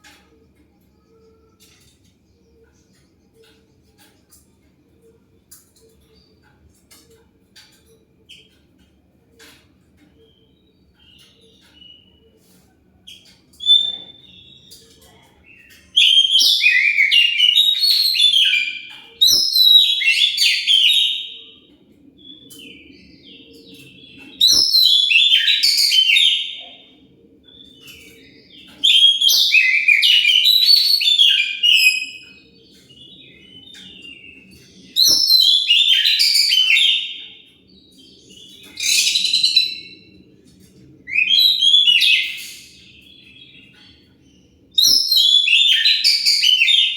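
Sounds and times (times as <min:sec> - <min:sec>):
bird singing fast loud song: 0:13.1 - 0:46.9.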